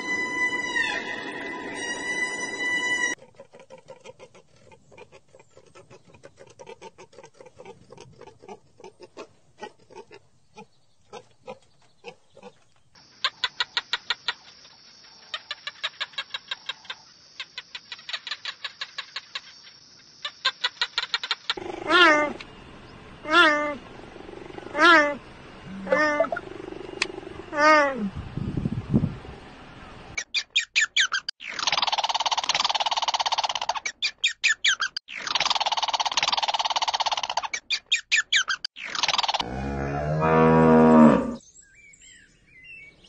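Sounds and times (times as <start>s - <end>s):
cheetah call with wavering pitch: 24.8s - 26.4s.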